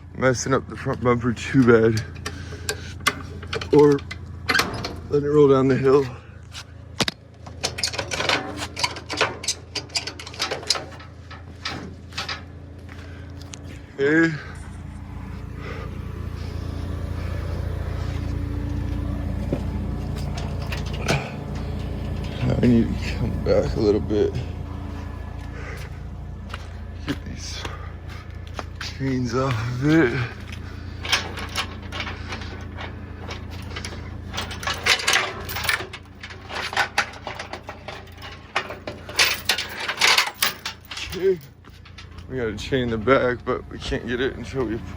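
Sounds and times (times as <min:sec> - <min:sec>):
forklift engine running: 0:00.0 - 0:44.9
metal clank: 0:07.0 - 0:12.6, 0:19.5 - 0:23.2, 0:28.8 - 0:42.3.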